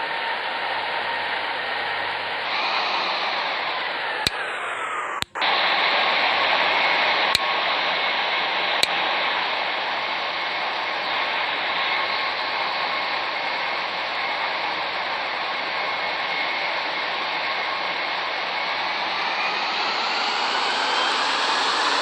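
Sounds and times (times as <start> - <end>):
falling whine: 2.4 - 22.0
sharp clicks: 4.3 - 4.5, 5.2 - 5.4
jet airliner rushing: 17.1 - 22.0.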